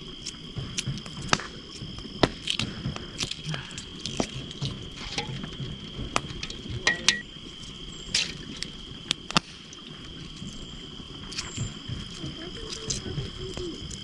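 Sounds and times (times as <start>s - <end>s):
crickets chirring: 0.0s - 14.0s
wood fire snapping: 0.0s - 14.0s.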